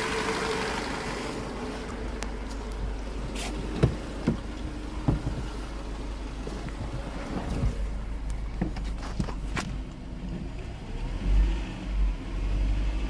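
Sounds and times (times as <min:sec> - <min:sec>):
car engine idling: 0:00.0 - 0:11.0
sharp engine knocks: 0:03.7 - 0:05.6.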